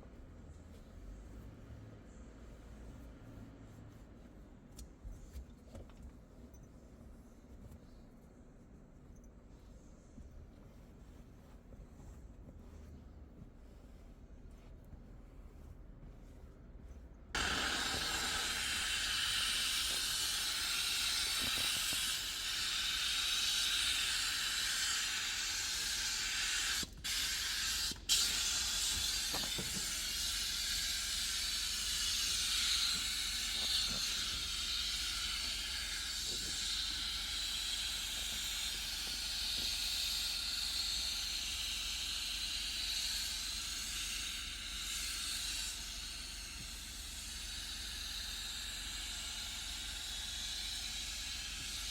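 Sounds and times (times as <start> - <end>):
nozzle hissing: 17.4 - 51.9.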